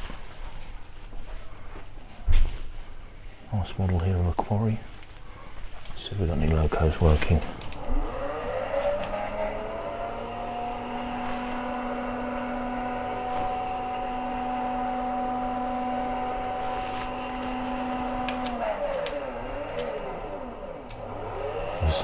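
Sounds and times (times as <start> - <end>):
small electric motor whining: 7.7 - 22.0.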